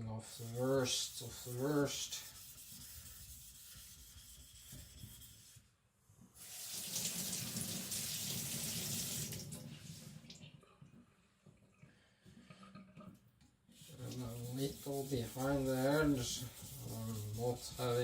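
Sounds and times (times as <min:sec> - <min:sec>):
water running from tap: 0:06.4 - 0:10.4.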